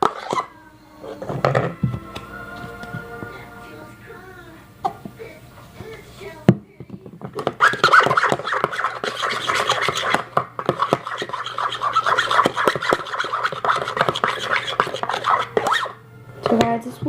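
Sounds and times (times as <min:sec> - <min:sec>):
slime stirred in a bowl: 0:07.4 - 0:16.0.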